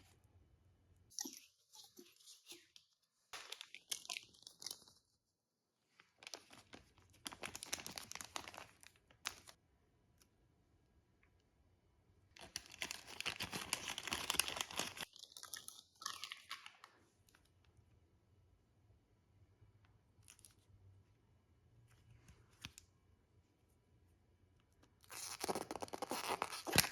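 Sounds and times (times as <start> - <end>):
packaging crinkling and tearing: 6.2 - 9.6, 12.4 - 15.3, 25.1 - 26.9.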